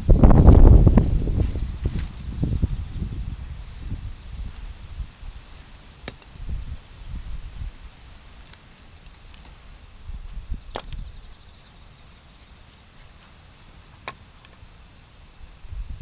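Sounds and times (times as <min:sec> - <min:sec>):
wind gusts on microphone: 0:00.0 - 0:05.6, 0:06.4 - 0:08.0, 0:10.0 - 0:11.3, 0:15.5 - 0:16.0
wood fire hissing and popping: 0:00.0 - 0:16.0.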